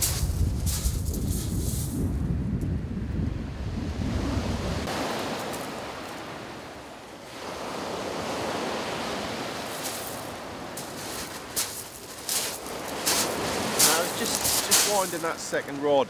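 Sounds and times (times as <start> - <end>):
surf washing on shingle beach: 0.0 - 2.0, 3.8 - 16.0
wind buffeting microphone: 0.0 - 5.1, 9.0 - 15.0.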